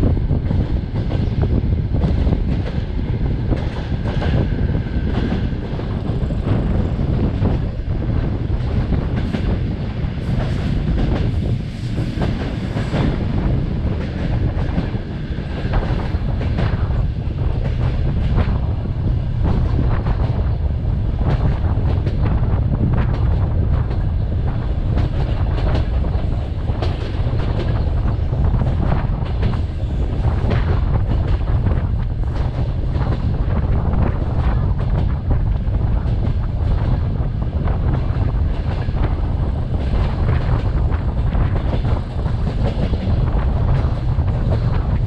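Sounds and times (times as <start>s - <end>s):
train rumbling: 0.0s - 45.0s.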